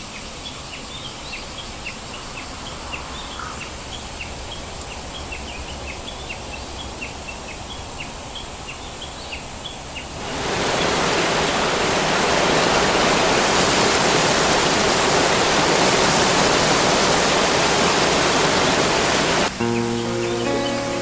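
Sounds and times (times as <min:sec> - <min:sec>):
rushing water: 0:00.0 - 0:21.0
plucked acoustic guitar music: 0:19.5 - 0:21.0.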